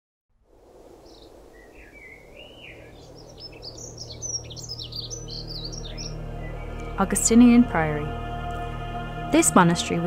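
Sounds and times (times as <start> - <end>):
birds chirping and singing: 1.0 - 8.0.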